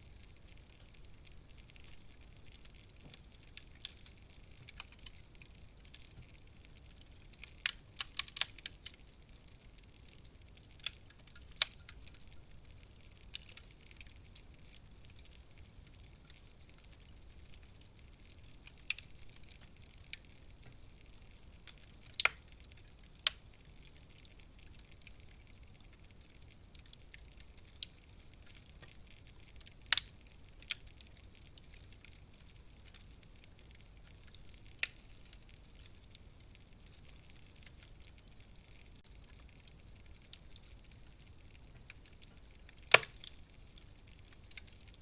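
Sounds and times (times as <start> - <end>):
wood fire crackling: 0.0 - 45.0
sharp fire pops: 41.2 - 44.8.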